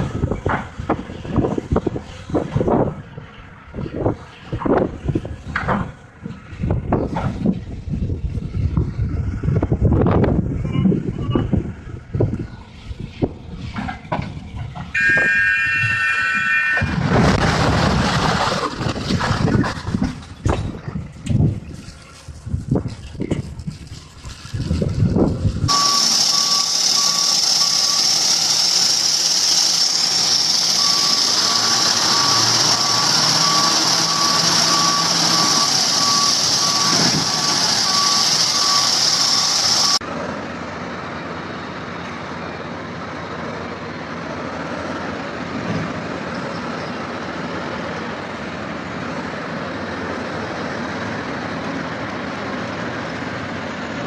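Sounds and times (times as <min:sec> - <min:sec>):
heavy machine engine: 0:00.0 - 0:54.0
reversing alarm beeping: 0:14.9 - 0:16.9, 0:25.7 - 0:29.2, 0:29.8 - 0:40.0.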